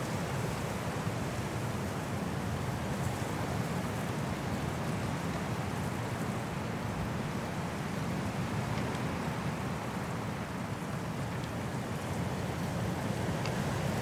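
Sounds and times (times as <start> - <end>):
high wind through trees: 0.0 - 14.0.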